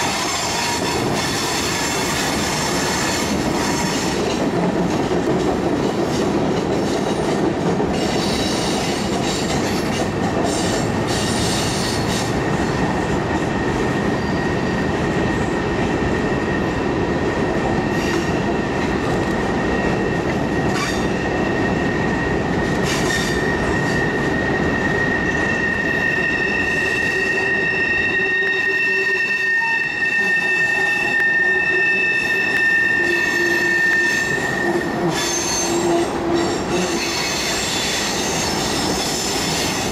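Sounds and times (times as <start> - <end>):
freight train wheels rumbling: 0.0 - 39.9
high-pitched wheel squeal: 22.8 - 39.7.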